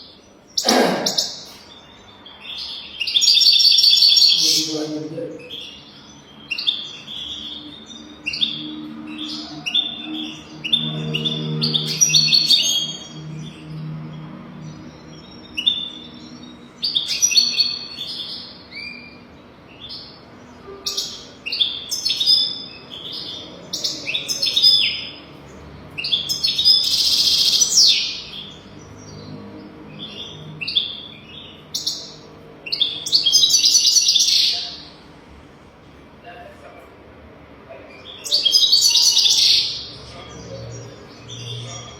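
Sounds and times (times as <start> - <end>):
goldfinch singing: 26.0 - 34.9.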